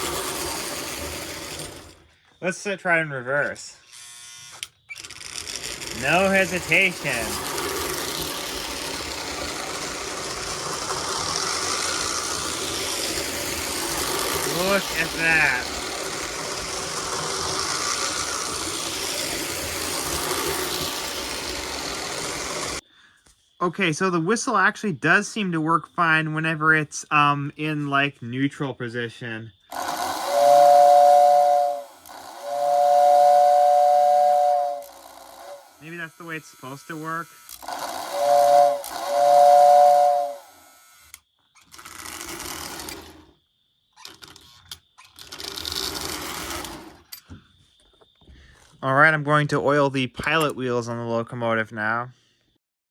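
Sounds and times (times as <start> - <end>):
wheels rumbling on rails: 0.0 - 2.1, 5.4 - 22.8, 30.0 - 35.6
toy train motor whirring: 0.0 - 2.2, 3.8 - 22.8, 29.7 - 43.4, 44.0 - 47.3
toy train whistle: 5.5 - 8.6, 13.8 - 20.7, 29.7 - 41.2.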